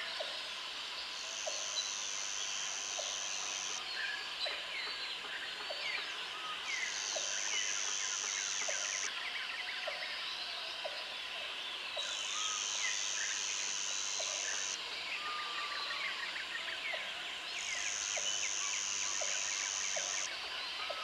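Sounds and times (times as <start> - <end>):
insect high buzz: 0.6 - 4.1, 6.6 - 9.1, 12.2 - 14.8, 17.6 - 20.4.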